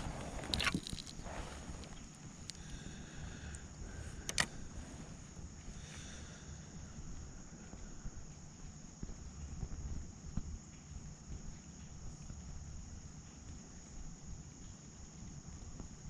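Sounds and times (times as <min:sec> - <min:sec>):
handling noise: 0:00.0 - 0:02.5.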